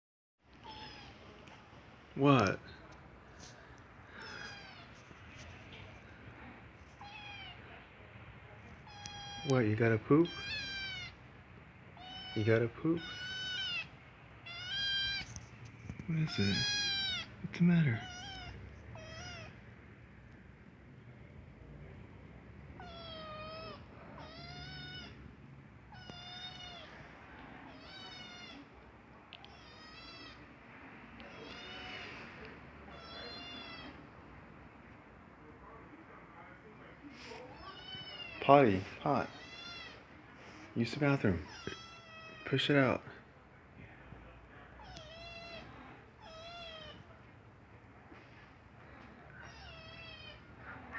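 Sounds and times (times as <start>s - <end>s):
kitten meowing: 0.6s - 1.2s, 4.2s - 5.0s, 7.0s - 7.6s, 8.8s - 9.5s, 10.3s - 11.2s, 12.0s - 15.3s, 16.3s - 17.3s, 18.0s - 19.6s, 22.8s - 25.2s, 25.9s - 27.0s, 27.7s - 28.7s, 29.4s - 30.4s, 31.2s - 32.1s, 32.9s - 34.0s, 39.3s - 40.0s, 44.8s - 47.0s, 49.4s - 50.4s.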